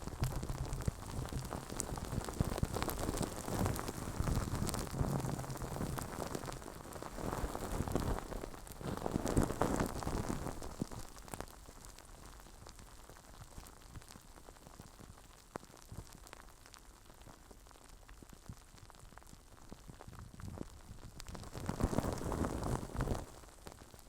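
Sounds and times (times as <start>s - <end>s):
rubbing on a microphone: 0.1s - 11.0s, 20.1s - 23.4s.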